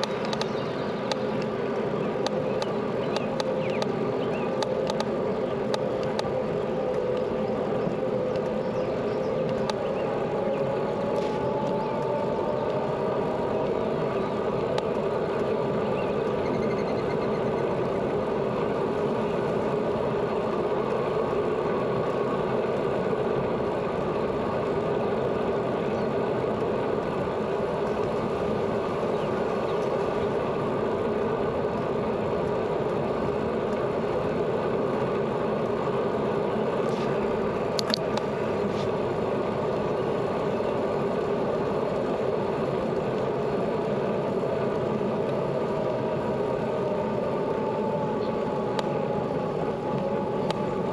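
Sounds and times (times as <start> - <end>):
sharp clicks: 0.0 - 1.5
bicycle rolling on road: 0.0 - 50.9.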